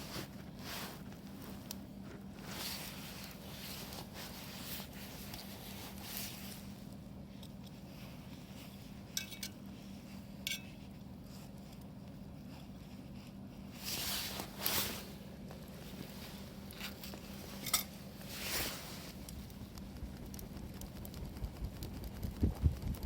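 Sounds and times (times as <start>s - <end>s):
quiet rustling: 0.0s - 21.3s.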